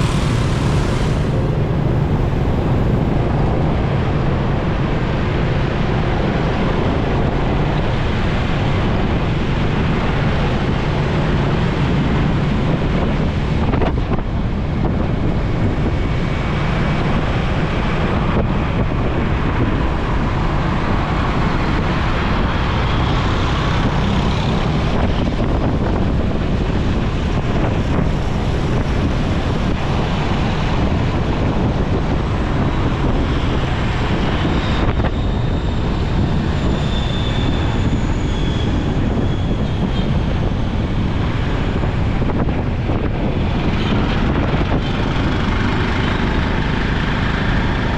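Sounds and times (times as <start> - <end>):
motorcycle engine hum: 0.0 - 4.5
road noise: 0.0 - 47.9
wind noise on microphone: 0.0 - 47.9.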